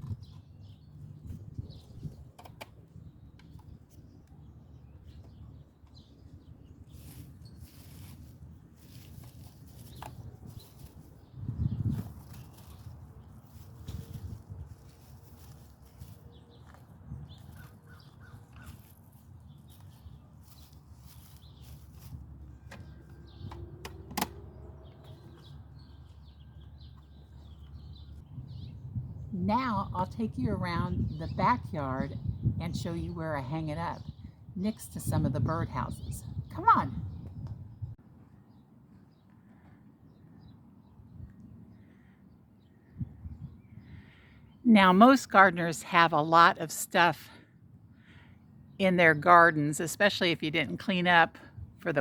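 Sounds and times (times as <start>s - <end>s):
birds calling faintly: 0.0s - 29.9s.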